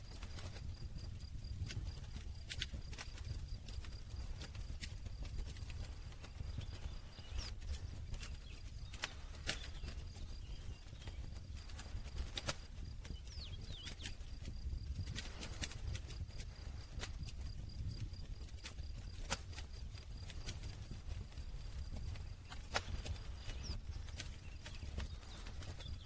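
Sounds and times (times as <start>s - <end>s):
wood crackling and popping in fire: 0.0s - 26.0s.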